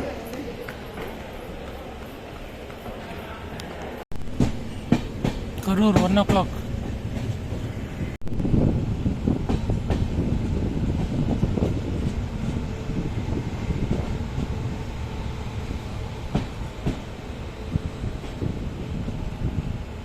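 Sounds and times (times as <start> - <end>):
train wheels rumbling: 0.0 - 20.0.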